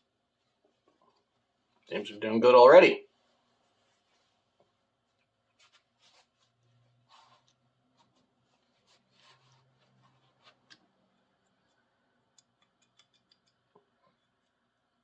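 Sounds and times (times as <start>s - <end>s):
wrench clicking and rubbing: 12.4s - 13.7s.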